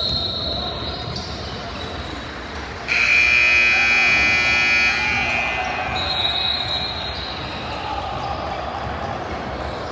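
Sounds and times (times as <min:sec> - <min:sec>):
gym crowd hum: 0:00.0 - 0:09.9
scoreboard horn: 0:02.9 - 0:06.0.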